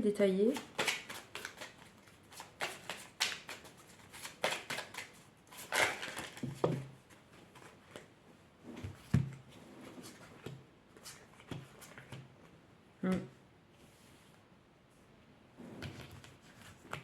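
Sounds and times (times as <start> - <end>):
cards rustling and clicking: 0.5 - 8.1, 10.0 - 12.3.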